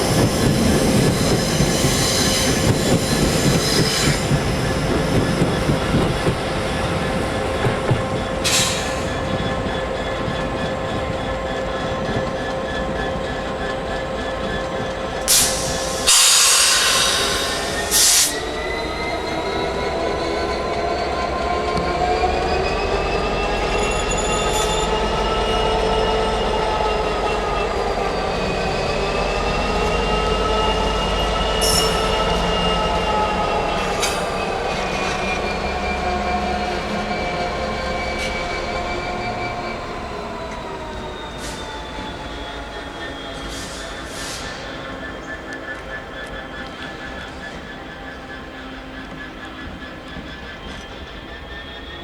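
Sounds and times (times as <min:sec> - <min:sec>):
train machinery whine: 0:00.0 - 0:52.0
loud hiss bursts: 0:15.3 - 0:18.4.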